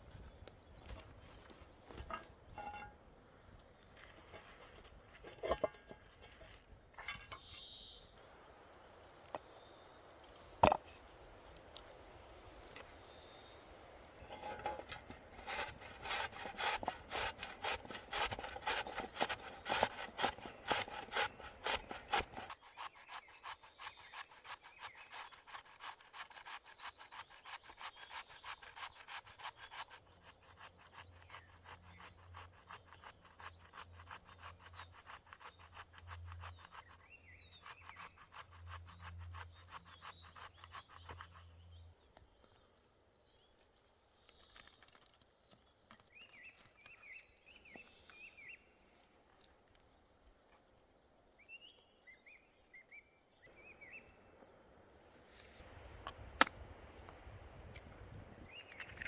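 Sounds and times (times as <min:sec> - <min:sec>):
hand saw cutting wood: 0:14.2 - 0:41.5.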